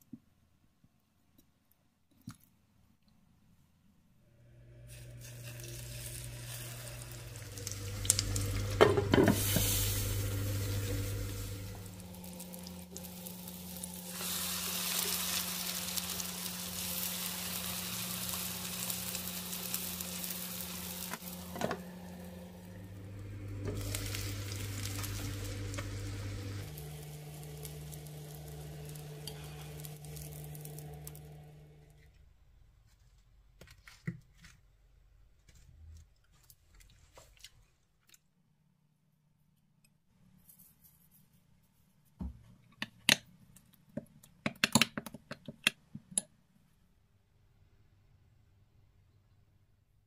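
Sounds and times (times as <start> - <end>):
food sizzling in oil: 4.9 - 31.8.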